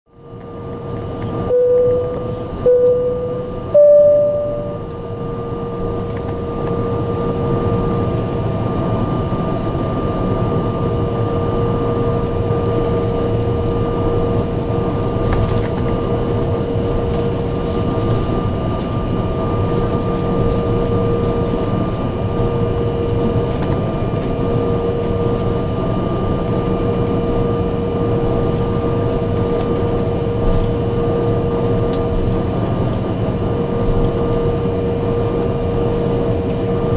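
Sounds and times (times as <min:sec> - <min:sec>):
jet engine whine: 0:00.1 - 0:36.9
short loud tones: 0:01.5 - 0:04.8.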